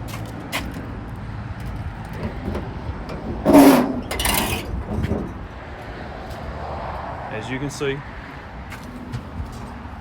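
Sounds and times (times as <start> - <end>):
metal drawers sliding open: 2.1 - 5.5.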